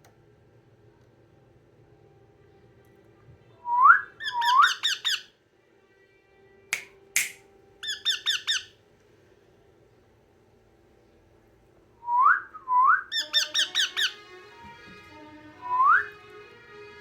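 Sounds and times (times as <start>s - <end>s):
parrot whistles and chirps: 3.7s - 5.3s, 7.2s - 8.7s, 12.1s - 14.2s.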